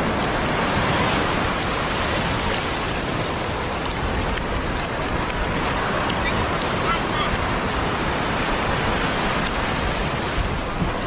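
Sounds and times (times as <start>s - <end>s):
surf washing on beach: 0.0s - 11.0s.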